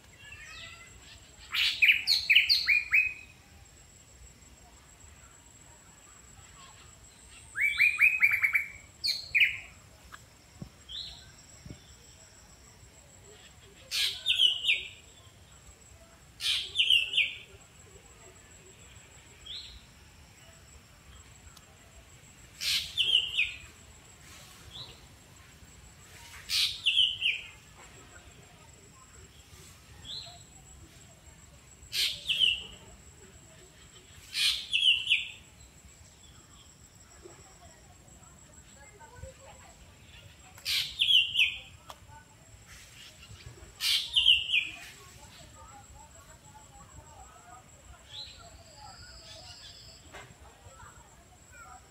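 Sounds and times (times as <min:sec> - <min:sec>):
songbird calling: 0:00.1 - 0:03.4, 0:06.7 - 0:09.8, 0:13.3 - 0:15.1, 0:16.4 - 0:17.5, 0:22.6 - 0:23.8, 0:26.2 - 0:27.6, 0:31.8 - 0:32.8, 0:33.7 - 0:35.4, 0:40.0 - 0:41.8, 0:42.7 - 0:45.1.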